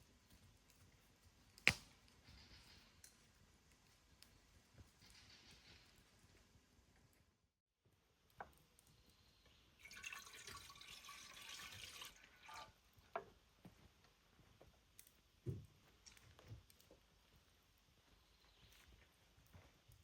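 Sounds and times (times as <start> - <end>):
water pouring: 9.8 - 12.9.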